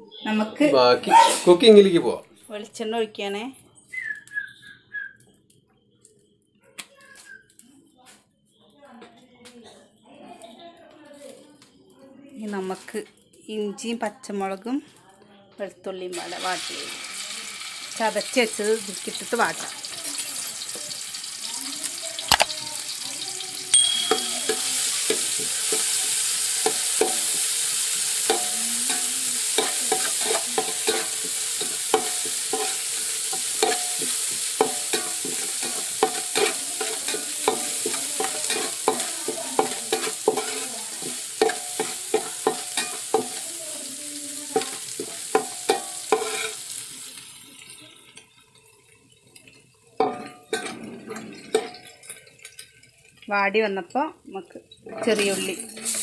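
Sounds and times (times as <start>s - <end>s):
food sizzling in oil: 12.3s - 14.8s, 16.0s - 56.0s
spoon scraping and knocking pot: 29.6s - 43.4s, 44.6s - 46.6s, 50.0s - 52.8s.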